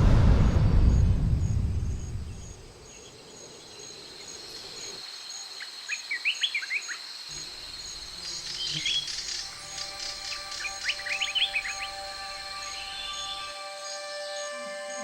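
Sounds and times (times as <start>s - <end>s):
low rumble: 0.0s - 2.9s
insect trill: 0.1s - 15.0s
bird chirping: 7.7s - 15.0s.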